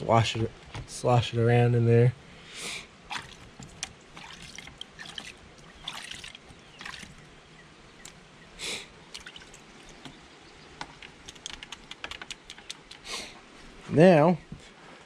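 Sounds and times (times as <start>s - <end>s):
gasoline sloshing in a bucket: 3.1s - 7.3s, 9.1s - 10.1s.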